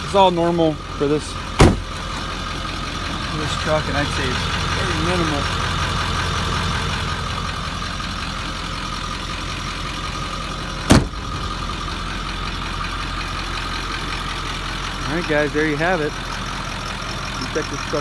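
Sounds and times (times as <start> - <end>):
diesel engine idling: 0.0 - 18.0
sharp thump: 1.6 - 2.0, 10.9 - 11.5.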